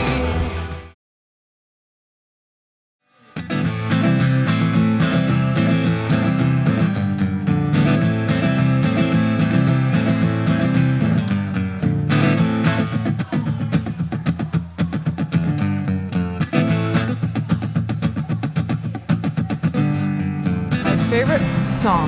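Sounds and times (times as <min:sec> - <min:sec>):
acoustic guitar strumming: 0:03.4 - 0:22.0.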